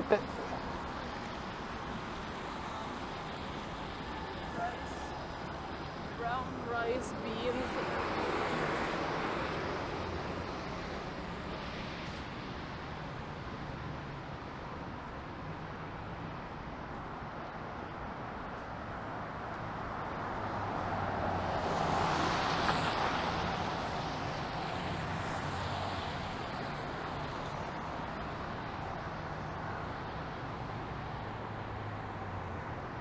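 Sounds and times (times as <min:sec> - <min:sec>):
vehicle passing: 0:00.0 - 0:11.9
traffic engine hum: 0:00.0 - 0:33.0.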